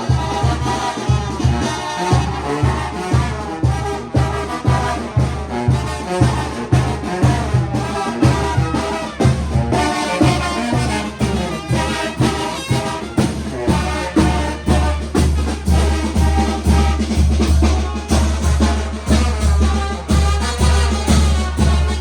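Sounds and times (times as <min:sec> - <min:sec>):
brass instruments playing melody: 0:00.0 - 0:22.0
drum beat: 0:00.0 - 0:22.0.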